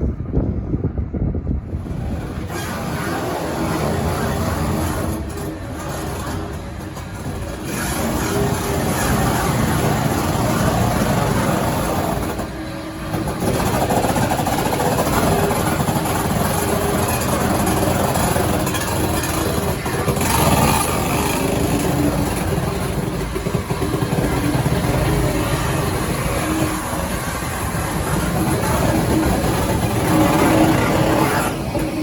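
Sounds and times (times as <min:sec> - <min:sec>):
steam locomotive running: 0:01.6 - 0:32.0.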